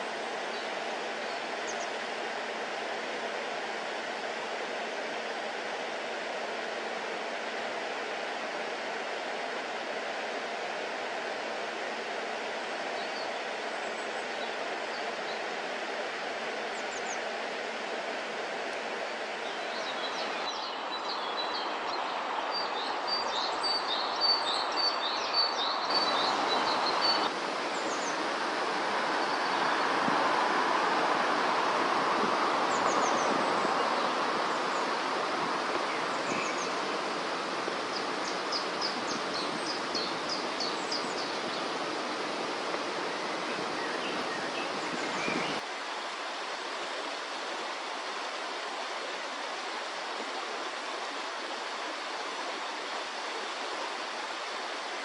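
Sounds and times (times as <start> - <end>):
river running: 0.0 - 55.0
small birds chirping: 19.4 - 30.2, 31.3 - 45.6.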